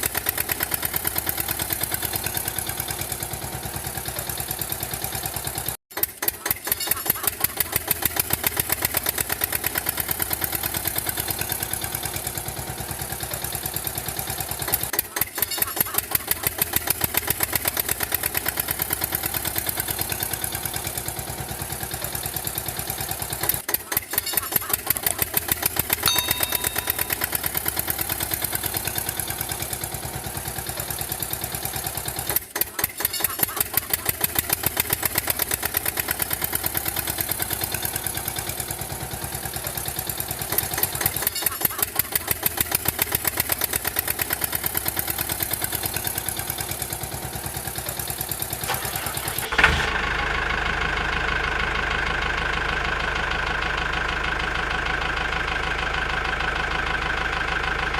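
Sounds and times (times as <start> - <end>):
engine running: 0.0 - 57.9
engine with high whine: 34.2 - 57.9.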